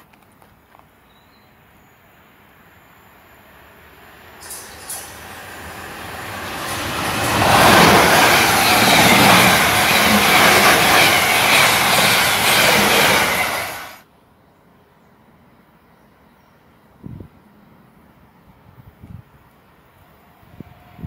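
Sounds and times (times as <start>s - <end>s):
train wheels rolling on rails: 3.7s - 14.0s.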